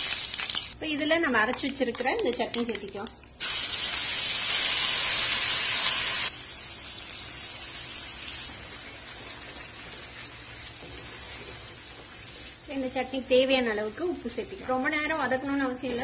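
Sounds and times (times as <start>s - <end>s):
paste sizzling in hot oil: 3.4s - 12.7s.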